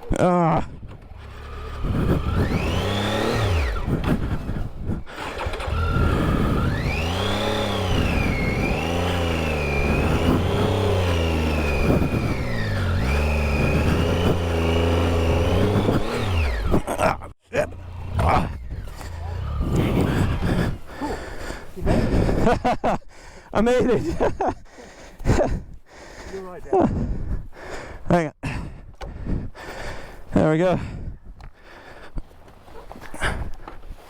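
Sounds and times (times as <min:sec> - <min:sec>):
motorcycle engine revving: 0:00.3 - 0:22.7.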